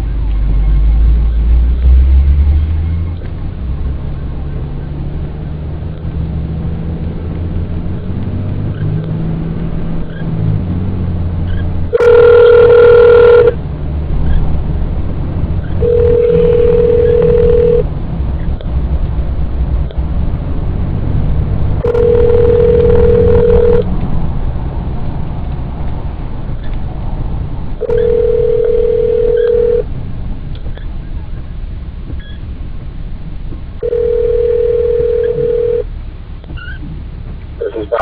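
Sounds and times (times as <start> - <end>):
car engine and road rumble: 0.0 - 38.0
phone ringback tone: 12.0 - 13.6, 15.8 - 17.8, 21.8 - 23.8, 27.8 - 29.8, 33.8 - 35.8.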